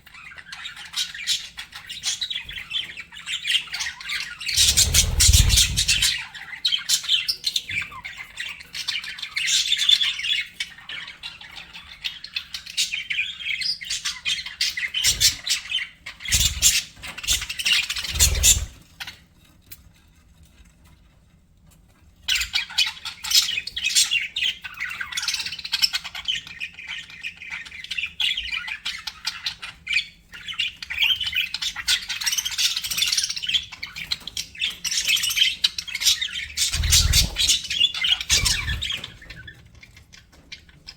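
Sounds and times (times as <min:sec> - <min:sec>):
low thumps: 0:04.6 - 0:06.2
budgerigars chattering: 0:36.6 - 0:39.0.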